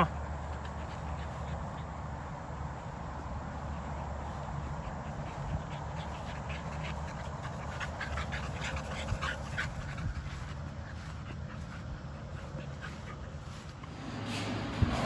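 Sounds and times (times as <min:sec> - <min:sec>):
puppy panting: 0:00.0 - 0:14.0.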